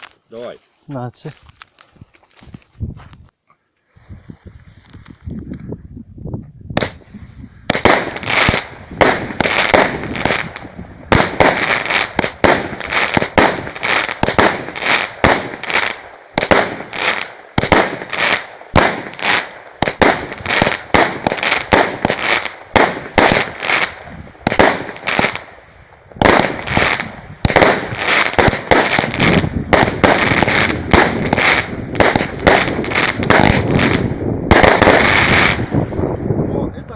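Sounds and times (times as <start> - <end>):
fireworks cake firing shots: 6.8 - 7.0, 7.7 - 25.5, 26.2 - 35.7.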